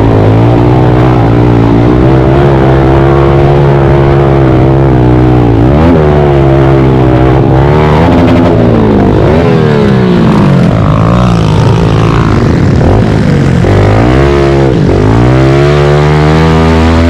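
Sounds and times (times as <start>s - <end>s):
pit bike engine revving: 0.0s - 17.0s.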